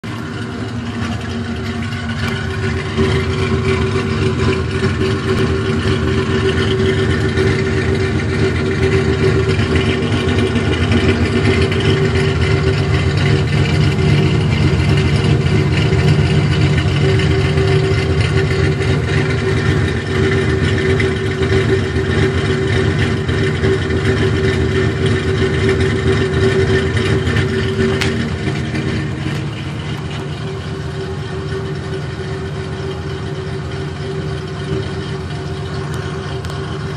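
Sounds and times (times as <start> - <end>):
car engine droning: 0.0 - 36.9.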